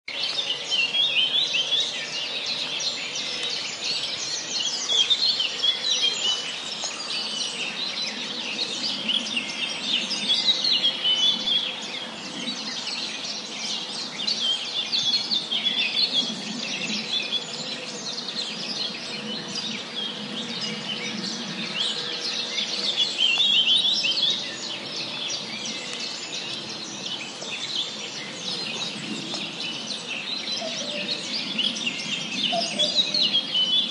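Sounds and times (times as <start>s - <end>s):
birds chirping and singing: 0.1s - 33.9s.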